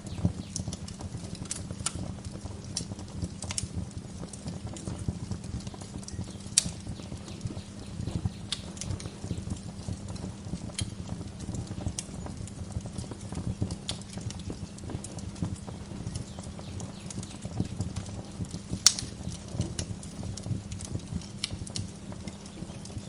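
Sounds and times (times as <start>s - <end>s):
low rumble of flames: 0.0s - 23.0s
wood fire crackling and popping: 0.0s - 23.0s.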